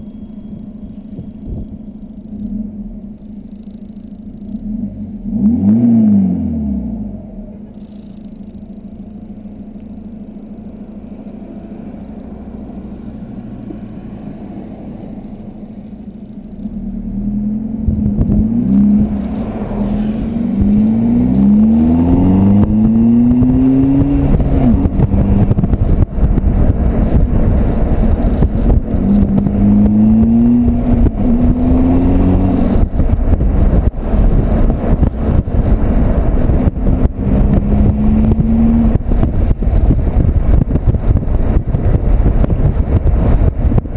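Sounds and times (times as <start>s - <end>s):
diesel car engine accelerating: 0.0s - 43.9s
wind buffeting: 17.8s - 43.9s.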